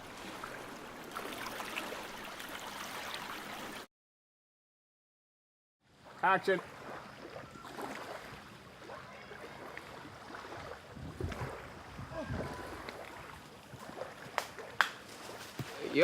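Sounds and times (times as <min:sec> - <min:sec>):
water sloshing at lake edge: 0:00.0 - 0:03.9, 0:05.9 - 0:16.0
wind noise: 0:10.6 - 0:13.7.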